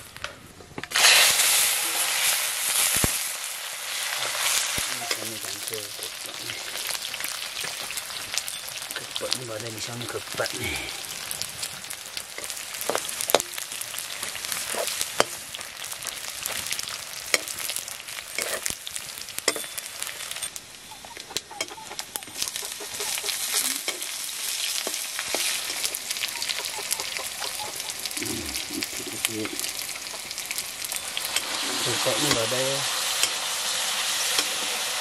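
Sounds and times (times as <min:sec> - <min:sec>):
greens sizzling in wok: 0:00.0 - 0:35.0
metal ladle scraping pan: 0:14.5 - 0:15.4, 0:18.3 - 0:18.7.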